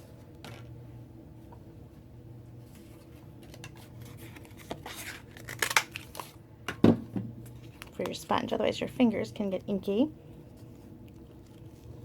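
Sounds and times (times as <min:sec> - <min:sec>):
low steady hum: 0:00.0 - 0:12.0
papery scrapes and clicks: 0:02.7 - 0:06.3.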